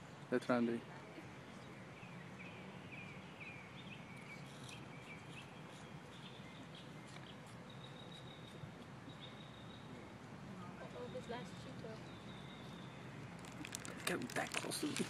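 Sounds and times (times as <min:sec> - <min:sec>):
small bird chirping: 0:01.4 - 0:10.0, 0:10.8 - 0:13.9.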